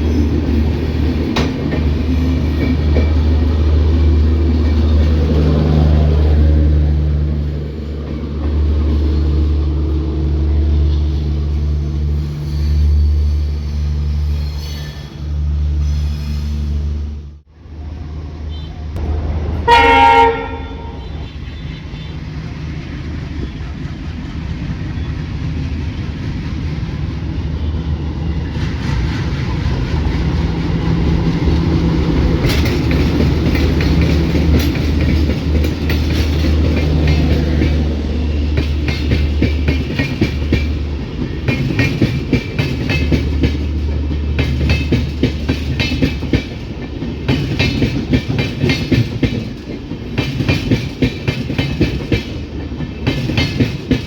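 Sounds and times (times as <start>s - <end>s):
train wheels clattering on rails: 0.0s - 10.4s, 21.0s - 54.0s
locomotive horn blast: 18.4s - 22.2s.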